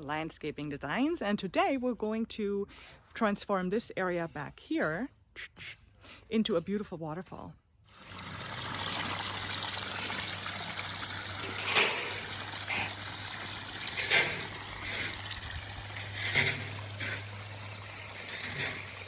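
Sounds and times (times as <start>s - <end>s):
water splashing over rocks: 7.9s - 19.0s.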